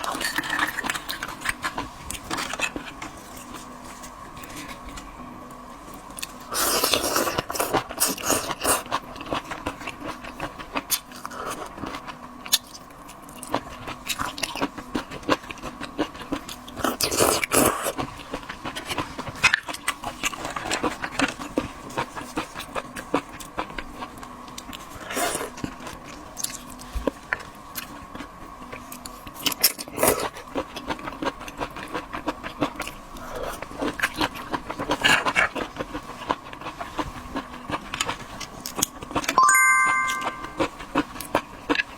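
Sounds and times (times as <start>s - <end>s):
chewing and crunching shells: 0.0s - 4.8s, 6.1s - 39.4s.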